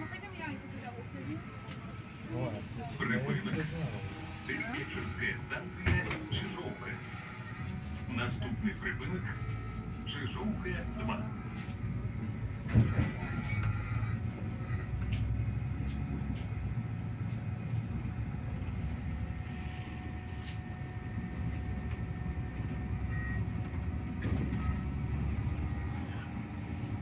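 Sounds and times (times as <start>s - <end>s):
bus engine and road rumble: 0.0s - 27.0s
faint whine: 0.1s - 15.8s.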